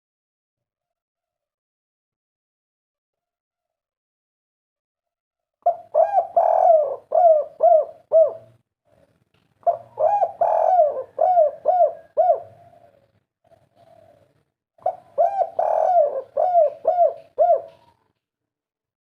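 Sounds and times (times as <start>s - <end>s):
dove cooing: 5.6s - 18.2s.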